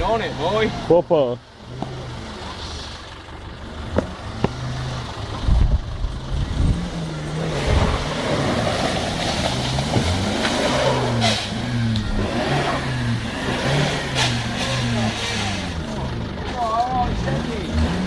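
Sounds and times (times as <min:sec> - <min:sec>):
engine revving: 0:00.0 - 0:18.0.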